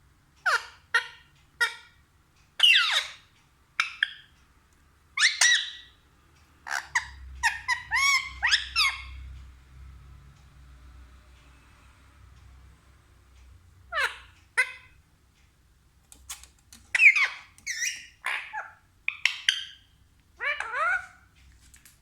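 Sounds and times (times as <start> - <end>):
parrot sharp calls: 6.6 - 9.2, 13.9 - 15.0, 16.9 - 21.3.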